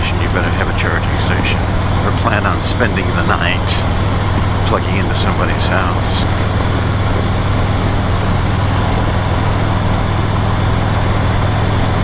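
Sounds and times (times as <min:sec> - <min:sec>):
motorcycle engine humming: 0:00.0 - 0:12.0
wind and road noise: 0:00.0 - 0:12.0.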